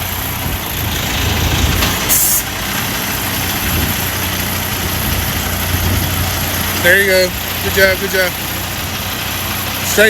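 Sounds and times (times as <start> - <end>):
diesel truck engine running: 0.0 - 10.0
air brake hiss: 2.1 - 2.5.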